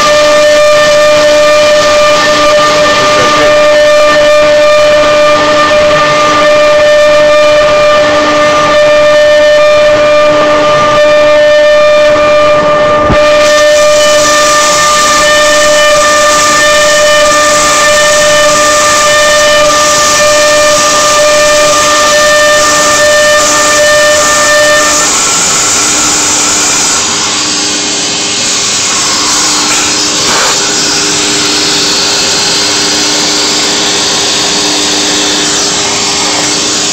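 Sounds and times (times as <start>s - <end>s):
router whining: 0.0s - 36.9s
loud rushing noise: 1.0s - 6.4s.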